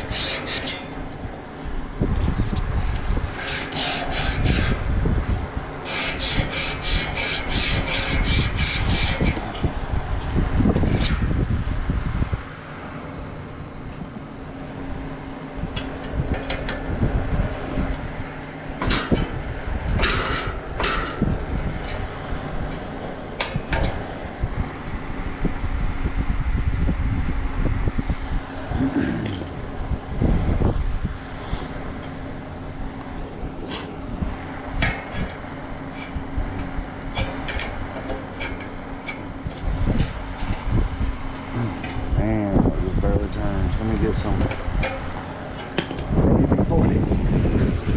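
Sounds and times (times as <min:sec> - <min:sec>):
metallic clanks and scrapes: 0:00.0 - 0:01.2, 0:02.2 - 0:04.8, 0:10.7 - 0:11.3, 0:20.0 - 0:22.0, 0:33.6 - 0:34.1, 0:34.8 - 0:40.8
steady hum: 0:00.0 - 0:47.9
wind on microphone: 0:00.0 - 0:47.9.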